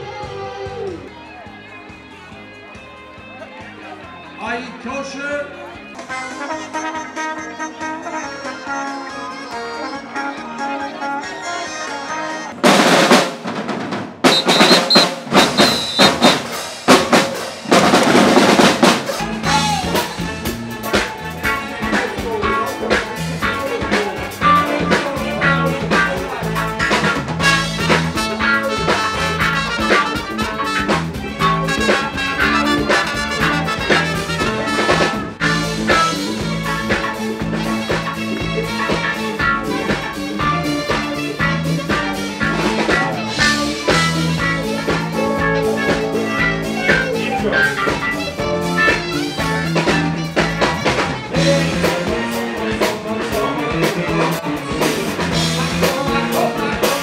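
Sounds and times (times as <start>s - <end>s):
band with repeating bass beat: 12.5s - 57.0s
snare drum rolls: 12.6s - 19.2s.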